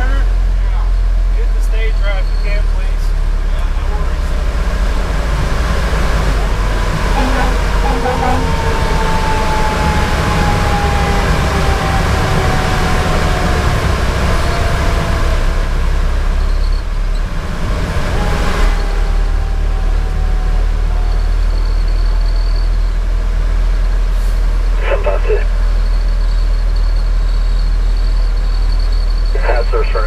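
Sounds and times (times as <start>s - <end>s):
diesel engine and road noise: 0.0s - 30.0s
faint tone sliding down in pitch: 6.3s - 13.6s.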